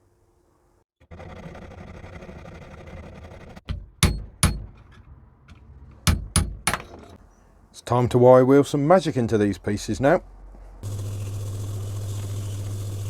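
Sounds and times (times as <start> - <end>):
hammer striking metal: 3.7 - 4.8, 6.0 - 7.1.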